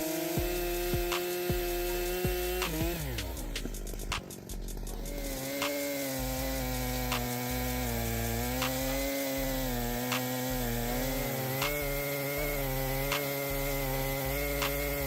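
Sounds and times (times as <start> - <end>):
chainsaw cutting wood: 0.0 - 15.0
sharp clicks: 2.4 - 6.4, 7.0 - 7.8, 8.5 - 9.2, 10.1 - 10.6, 11.5 - 12.2, 13.1 - 13.5, 14.6 - 15.0.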